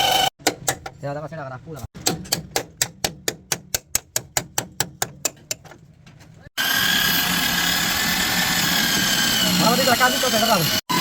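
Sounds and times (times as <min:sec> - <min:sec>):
power tool high whine: 0:06.6 - 0:11.0.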